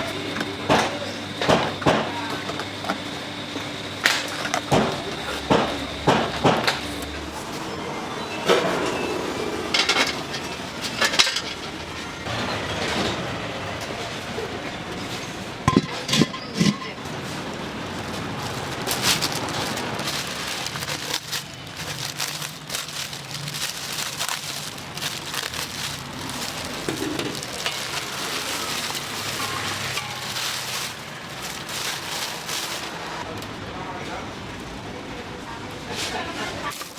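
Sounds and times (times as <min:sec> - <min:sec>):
dishes and utensils clinking: 0:08.5 - 0:12.0, 0:15.6 - 0:17.2, 0:23.8 - 0:32.3.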